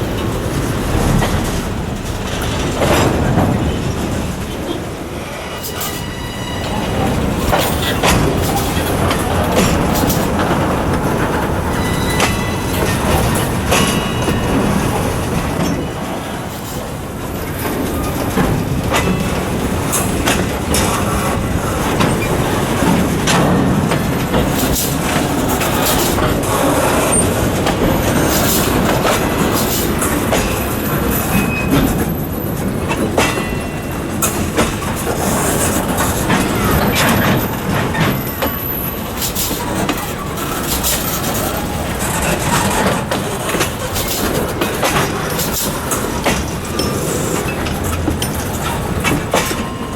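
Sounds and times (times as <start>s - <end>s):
freight train clanking over track: 0.0s - 49.9s
high wheel squeals: 5.3s - 8.9s, 11.0s - 16.8s.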